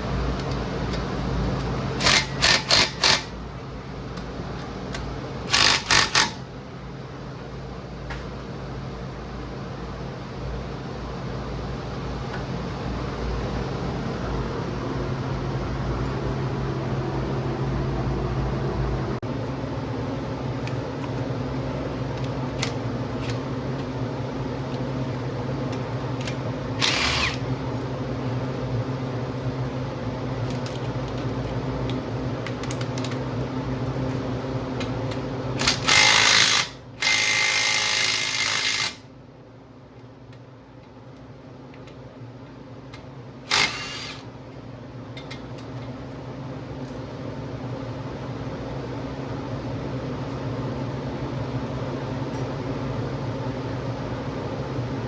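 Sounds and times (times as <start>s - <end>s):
steady mechanical hum: 0.0s - 55.0s
power tool bursts: 2.0s - 3.3s, 5.4s - 6.4s, 26.8s - 27.5s, 35.6s - 39.0s, 43.5s - 44.3s.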